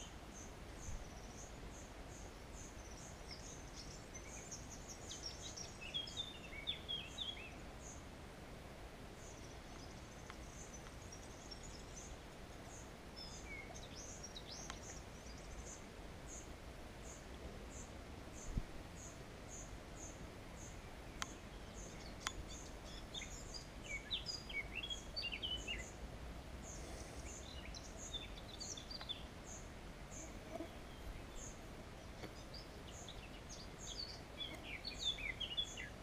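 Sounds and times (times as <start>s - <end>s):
quick bird chirping song: 9.2s - 26.0s, 26.6s - 36.0s.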